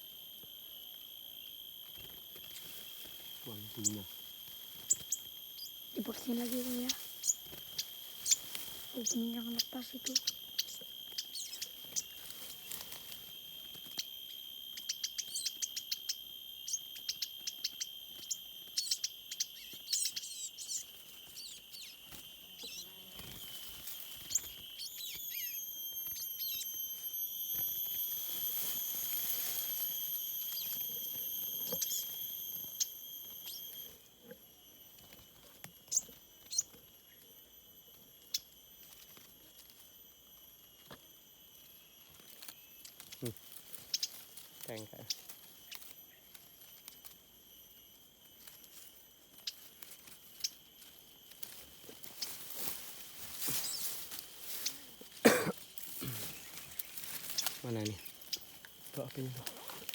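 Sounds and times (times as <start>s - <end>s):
insects droning: 0.0s - 59.9s
bird chirps: 1.2s - 13.2s, 13.9s - 26.8s, 27.5s - 34.0s, 35.8s - 37.2s, 42.6s - 46.3s, 53.5s - 55.0s, 55.7s - 59.6s.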